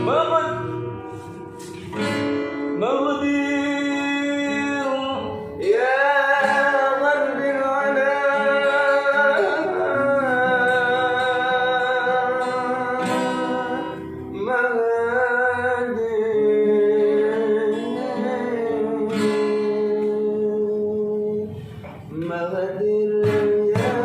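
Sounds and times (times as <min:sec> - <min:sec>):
plucked acoustic guitar: 0:00.0 - 0:24.0
person singing held wavering notes: 0:05.2 - 0:19.1.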